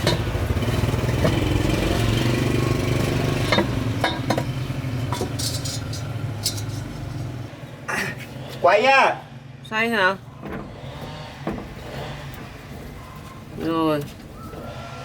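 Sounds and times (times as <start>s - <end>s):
truck engine running: 0.0s - 7.8s
metallic clinks and knocks: 3.0s - 7.5s.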